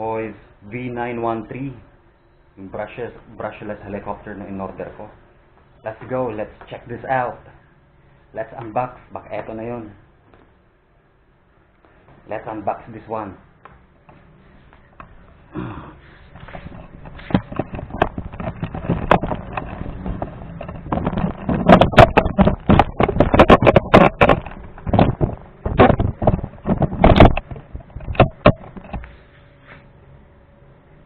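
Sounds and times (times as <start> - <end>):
knocks: 17.2 - 29.0.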